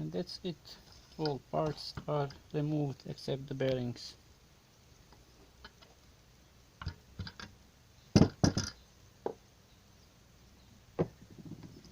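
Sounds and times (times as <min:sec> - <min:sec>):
metal parts knocking on bench: 0:08.2 - 0:08.8.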